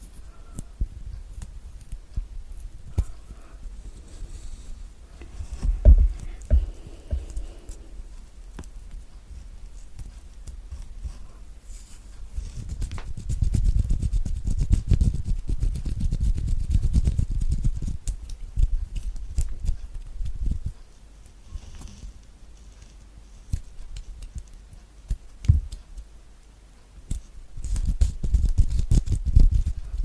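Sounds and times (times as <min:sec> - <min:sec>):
hands rubbing on microphone: 0:03.7 - 0:08.0, 0:11.0 - 0:17.9.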